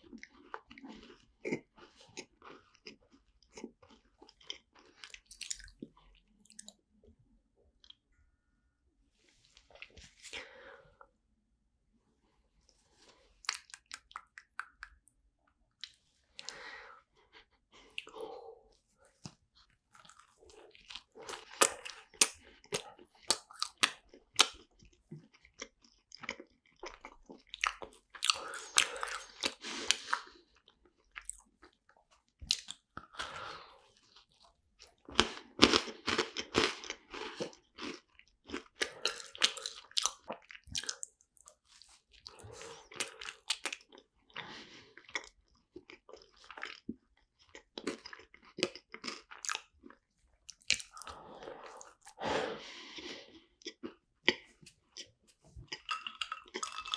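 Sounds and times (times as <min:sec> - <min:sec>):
biting and chewing macarons: 0:00.0 - 0:06.8, 0:13.4 - 0:15.1, 0:19.1 - 0:52.2, 0:52.9 - 0:56.9.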